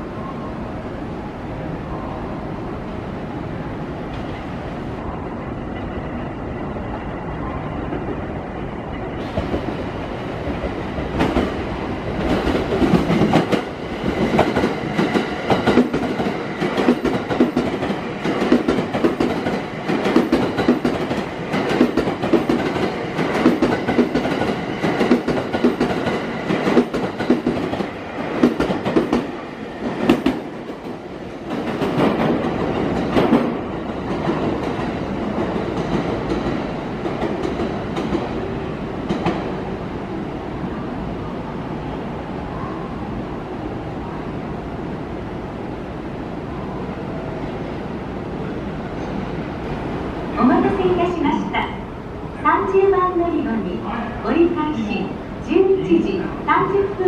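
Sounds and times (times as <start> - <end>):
electric train running past: 0.0 - 57.0.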